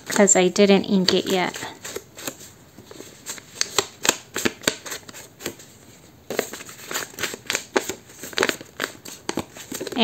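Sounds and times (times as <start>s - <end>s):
ink pad tapping paper: 0.9s - 2.4s.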